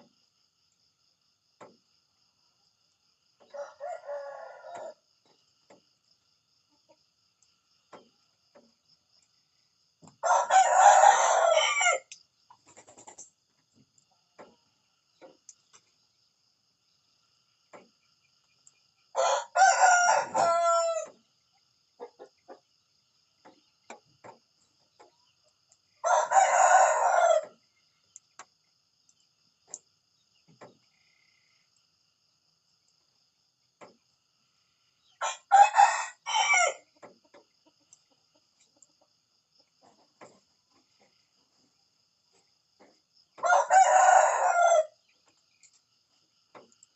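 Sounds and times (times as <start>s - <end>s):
rooster crowing: 3.4s - 5.0s, 10.2s - 12.2s, 19.1s - 21.2s, 26.0s - 27.6s, 35.2s - 36.9s, 43.4s - 45.0s.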